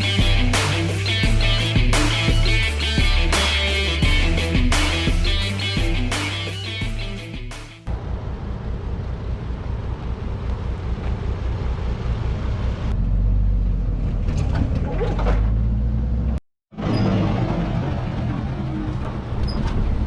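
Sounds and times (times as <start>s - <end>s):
vehicle engine rumbling: 7.9s - 20.0s.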